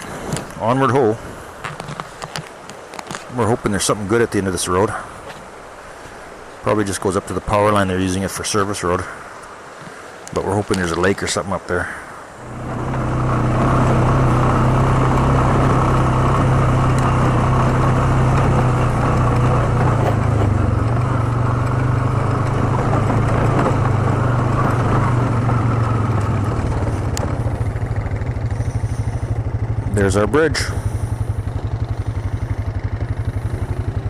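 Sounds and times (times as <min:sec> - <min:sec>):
quad bike engine running: 0:12.4 - 0:34.0.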